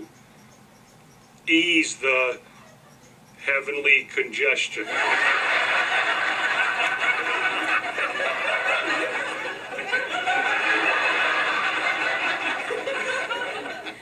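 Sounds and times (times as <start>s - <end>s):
studio audience laughing: 4.8s - 14.0s.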